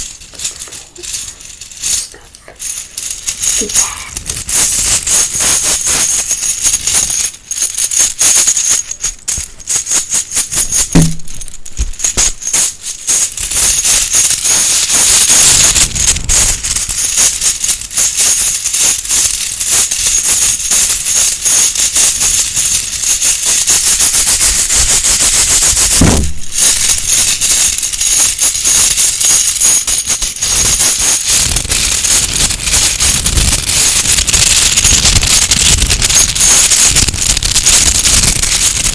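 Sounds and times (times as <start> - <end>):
bag rustling and crinkling: 0.0 - 9.8, 10.5 - 13.4, 24.9 - 28.6.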